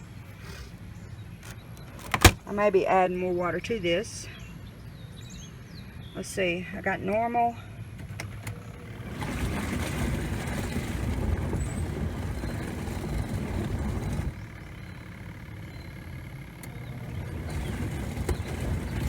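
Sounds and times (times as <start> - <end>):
washing machine motor humming: 8.3 - 19.0
water churning in tub: 8.9 - 15.0.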